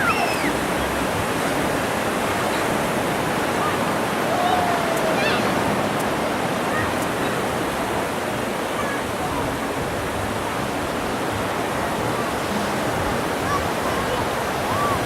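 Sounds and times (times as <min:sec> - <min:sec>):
ocean surf washing up beach: 0:00.0 - 0:15.0.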